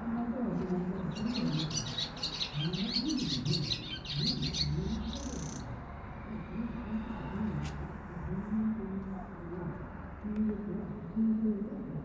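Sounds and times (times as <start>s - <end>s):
swallows twittering: 1.0s - 5.7s.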